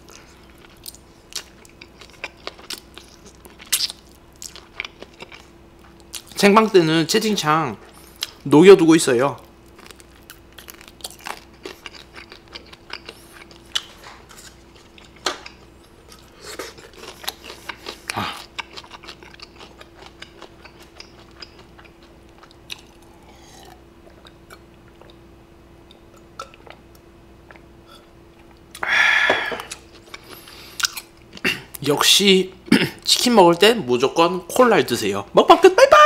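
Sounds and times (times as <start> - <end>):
chewing with wet mouth clicks: 0.1 - 6.4, 9.7 - 25.2, 25.8 - 28.8, 29.6 - 31.8.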